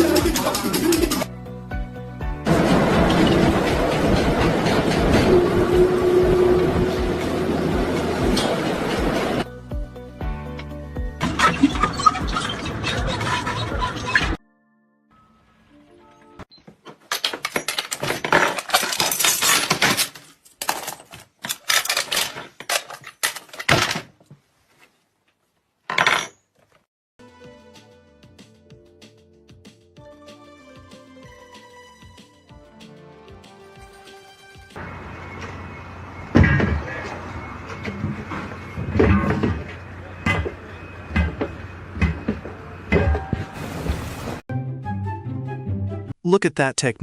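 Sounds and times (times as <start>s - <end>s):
hard objects clattering together: 17.0s - 24.2s
person's voice: 46.2s - 47.0s.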